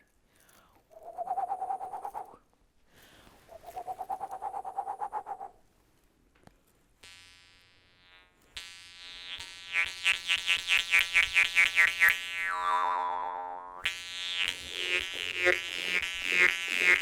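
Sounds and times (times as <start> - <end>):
warbling trill: 11.1 - 17.0.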